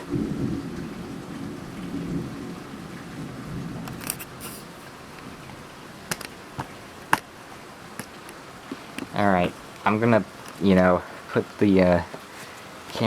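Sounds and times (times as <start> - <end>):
thunder rumbling: 0.0 - 4.0
heavy rain: 0.0 - 13.0.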